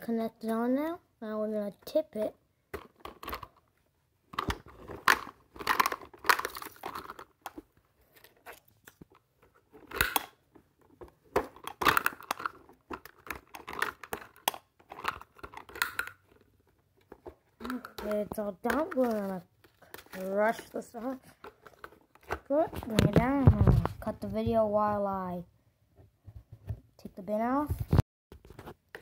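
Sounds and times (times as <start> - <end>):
plastic toy clicks and rattles: 4.4 - 7.6, 11.5 - 16.4.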